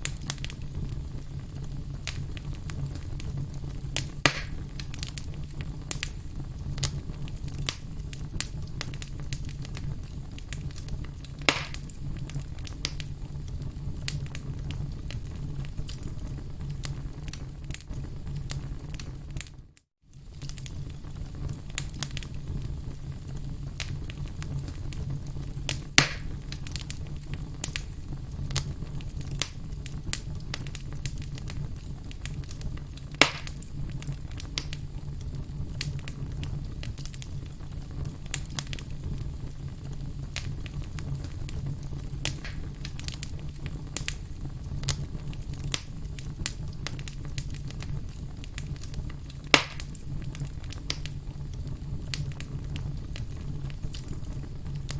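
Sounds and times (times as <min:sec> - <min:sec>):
firewood crackling: 0:00.0 - 0:54.9
low hum of fire: 0:00.0 - 0:54.9
sharp loud pops: 0:04.2 - 0:04.6, 0:11.5 - 0:11.8, 0:26.0 - 0:26.3, 0:33.2 - 0:33.5.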